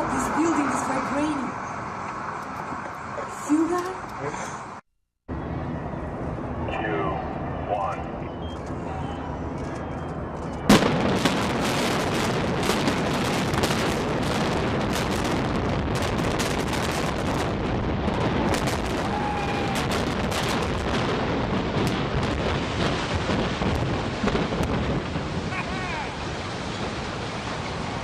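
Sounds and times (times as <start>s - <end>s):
collapsing building rumble: 0.0s - 28.0s
explosive charges cracking: 10.6s - 28.0s.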